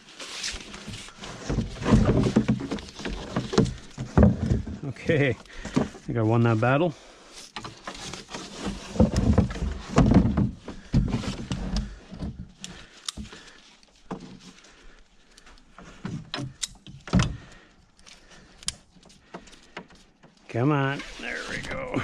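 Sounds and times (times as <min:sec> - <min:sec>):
box and strap knocks and rattles: 0:00.6 - 0:06.1, 0:07.6 - 0:13.4.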